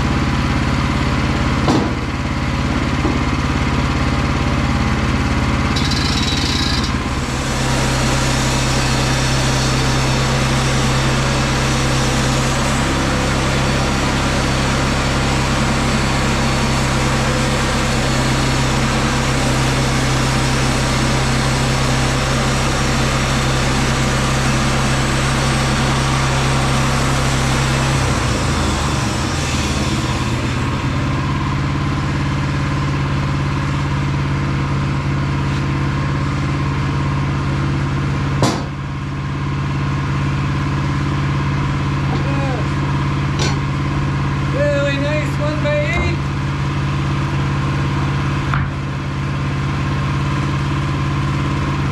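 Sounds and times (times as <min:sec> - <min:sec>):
sawmill engine running under load: 0:00.0 - 0:51.9
man talking: 0:42.1 - 0:42.8, 0:44.5 - 0:46.3.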